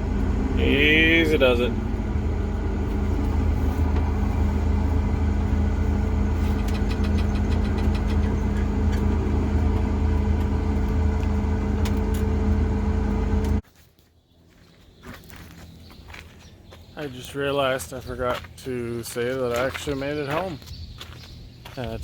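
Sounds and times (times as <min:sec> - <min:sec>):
combine harvester engine running: 0:00.0 - 0:13.6
quick even ticking: 0:06.5 - 0:08.7.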